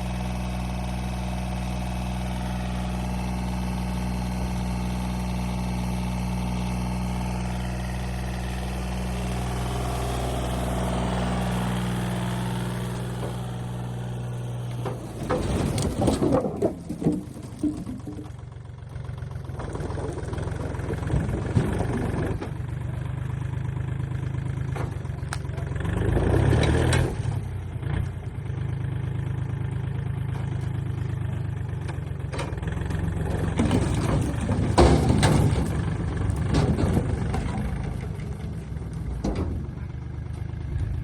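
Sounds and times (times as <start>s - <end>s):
motor humming: 4.3s - 18.2s.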